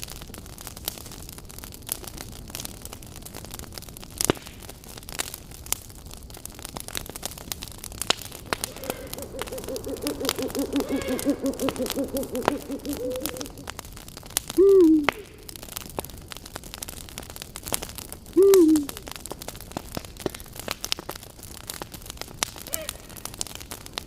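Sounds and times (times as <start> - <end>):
campfire crackling and popping: 0.0 - 24.0
owl hooting: 8.4 - 13.7, 14.6 - 15.6, 18.4 - 19.0.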